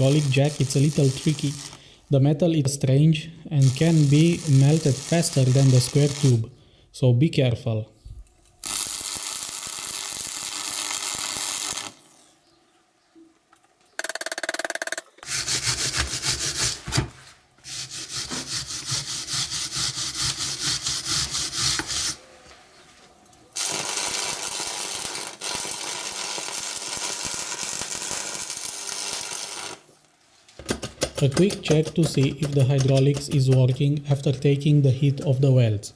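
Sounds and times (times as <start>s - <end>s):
welding arc crackling and hissing: 0.0s - 2.1s, 3.4s - 6.5s, 8.6s - 12.4s, 17.7s - 22.2s, 23.6s - 30.0s.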